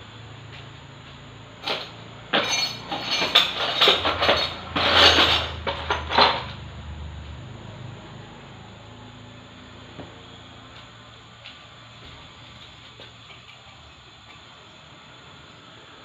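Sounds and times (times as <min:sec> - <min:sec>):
metal tools clinking: 0:01.6 - 0:06.5.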